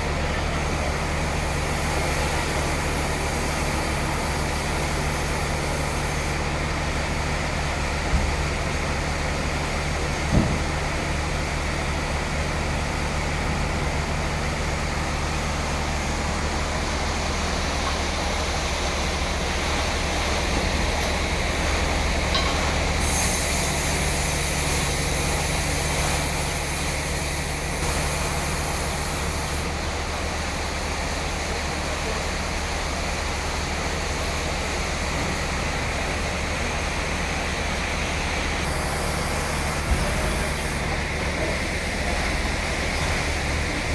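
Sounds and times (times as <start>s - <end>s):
sawmill sawing log: 23.0s - 29.7s, 38.2s - 43.9s.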